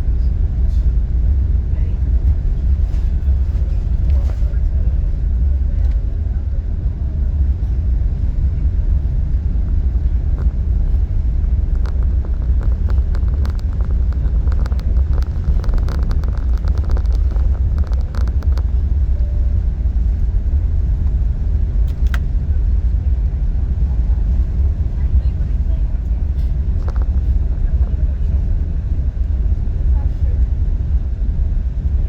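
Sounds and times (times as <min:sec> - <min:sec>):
airliner cabin rumble: 0:00.0 - 0:32.0
light clicks and rattles: 0:10.1 - 0:19.1, 0:21.8 - 0:22.3.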